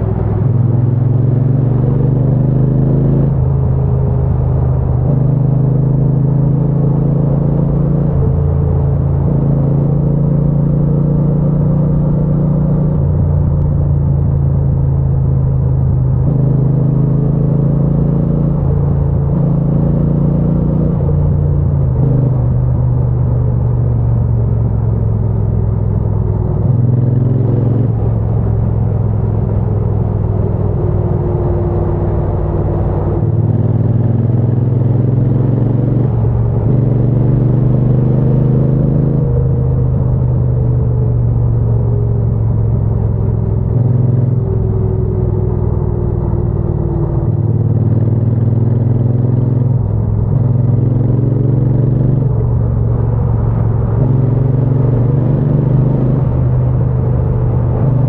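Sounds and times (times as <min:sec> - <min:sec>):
motorcycle engine and exhaust: 0:00.0 - 0:58.0.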